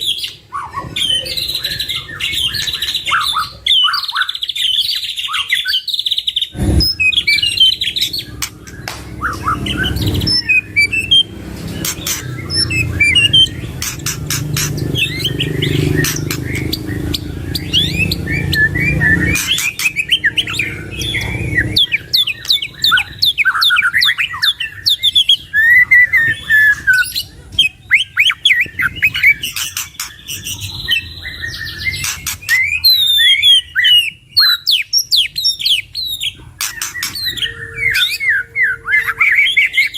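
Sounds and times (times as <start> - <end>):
birds singing: 0.0 - 39.9
low rumble: 6.6 - 22.0.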